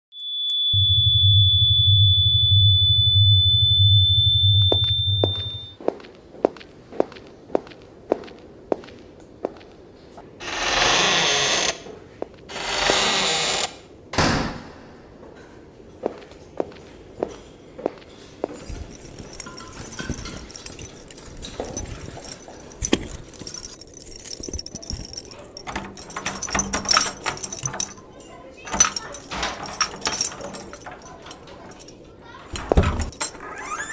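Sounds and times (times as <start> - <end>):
high-pitched sine tones: 0.1 - 5.8
pulsing low hum: 0.5 - 5.8
regular footsteps: 4.2 - 10.3, 16.0 - 33.4
small hard objects jingling: 18.5 - 33.3.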